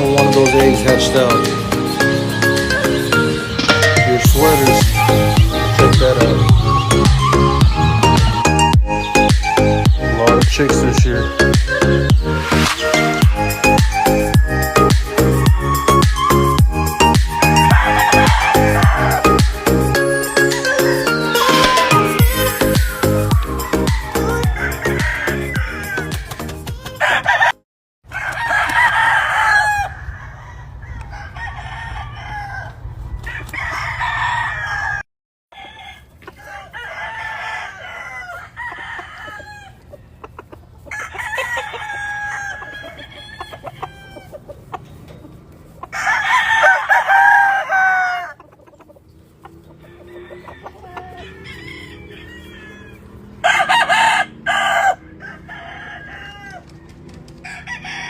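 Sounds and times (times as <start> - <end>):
roosters crowing: 0.0 - 58.0
hens clucking: 17.6 - 27.6, 37.8 - 54.4.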